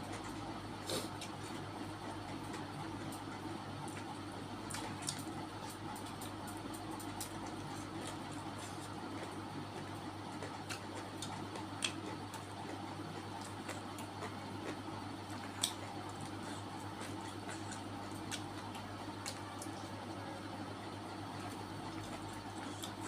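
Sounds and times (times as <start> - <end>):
steady low hum: 0.0 - 23.0
wet chewing smacks: 3.9 - 19.8, 21.4 - 23.0.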